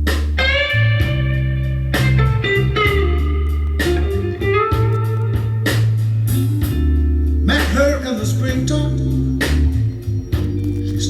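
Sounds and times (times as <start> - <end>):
drum beat: 0.0 - 6.9
bass line: 0.0 - 11.0
electric guitar lead: 0.0 - 11.0.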